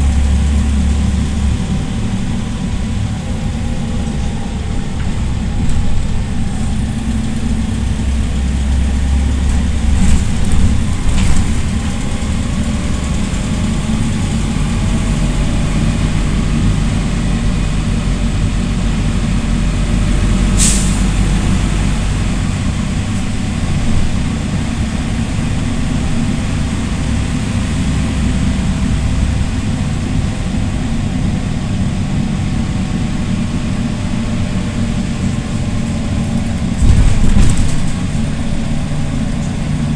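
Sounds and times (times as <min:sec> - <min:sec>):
bus engine drone: 0:00.0 - 0:39.9
air release hiss: 0:20.6 - 0:21.1.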